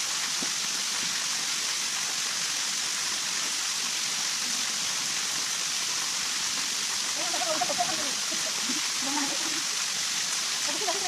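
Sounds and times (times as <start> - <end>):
rushing water hiss: 0.0 - 11.0.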